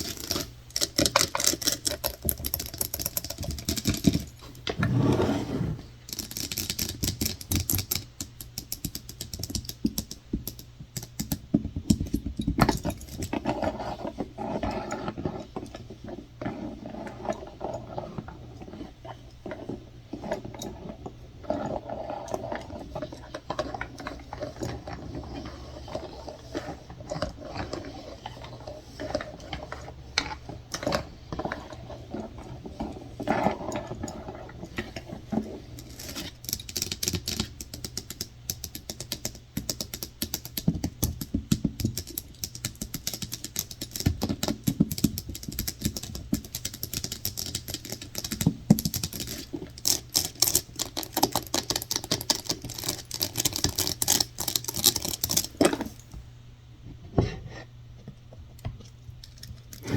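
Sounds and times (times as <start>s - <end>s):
rapid tapping on objects: 6.1s - 17.4s, 18.7s - 56.2s
scratching: 12.8s - 37.7s, 46.1s - 56.1s.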